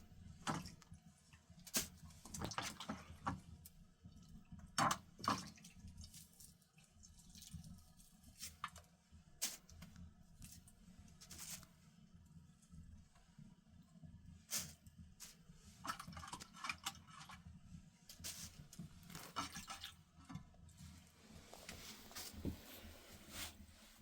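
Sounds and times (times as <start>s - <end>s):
faint drips and taps: 0.3s - 11.7s, 15.6s - 20.8s.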